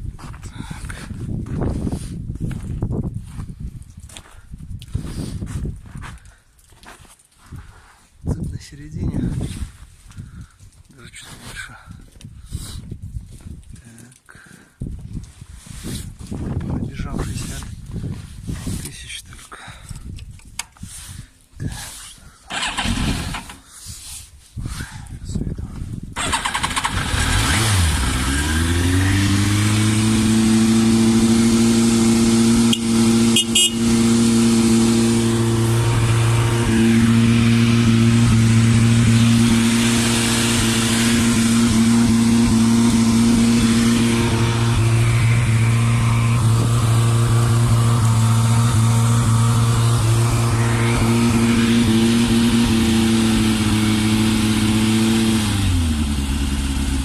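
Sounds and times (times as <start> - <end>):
motorcycle engine revving and idling: 22.5 - 23.6, 26.2 - 57.0.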